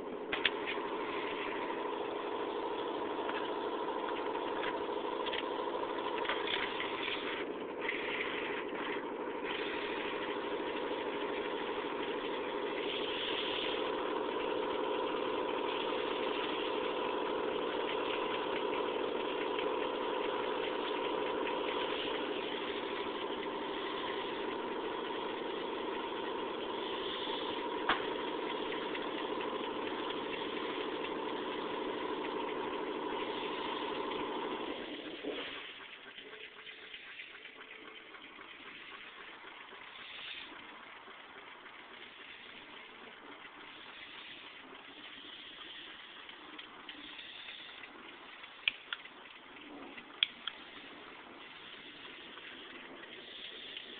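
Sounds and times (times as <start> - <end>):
stirling engine humming: 0.0 - 41.0.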